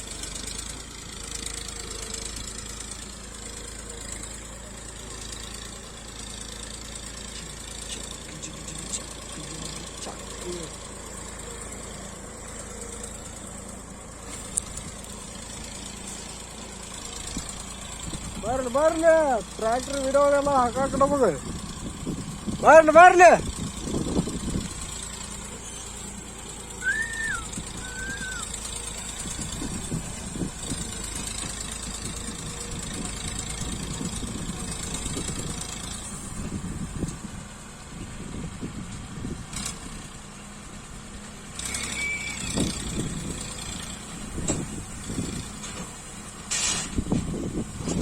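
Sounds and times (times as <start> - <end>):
tractor diesel engine running: 0.0 - 48.0
short whistle-like tones: 26.8 - 28.5, 41.6 - 42.6.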